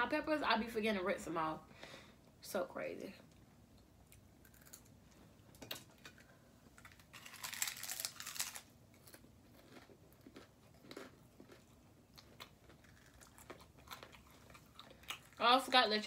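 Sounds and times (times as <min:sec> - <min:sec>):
chewing and crunching: 0:04.1 - 0:15.8.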